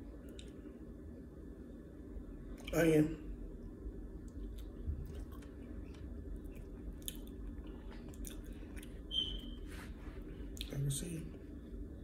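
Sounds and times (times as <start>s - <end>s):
chewing and mouth sounds: 4.2s - 9.1s, 10.5s - 10.8s.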